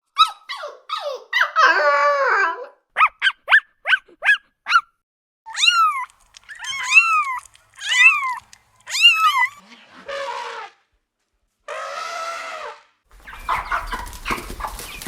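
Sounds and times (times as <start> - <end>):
dog whining and yelping: 0.2 - 4.9, 5.5 - 9.6
cat meowing: 5.5 - 9.6.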